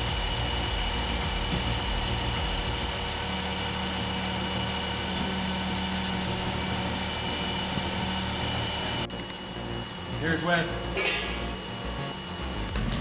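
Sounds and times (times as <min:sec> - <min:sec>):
diesel engine with hydraulics: 0:00.0 - 0:13.0.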